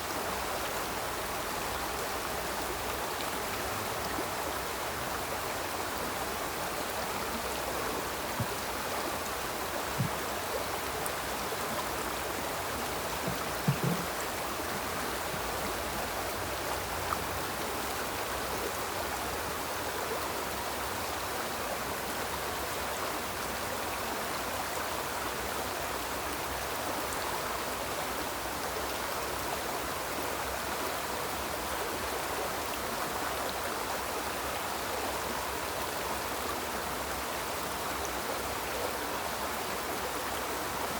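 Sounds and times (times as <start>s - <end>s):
river flowing over rocks: 0.0s - 40.9s
low knocks: 13.2s - 14.2s.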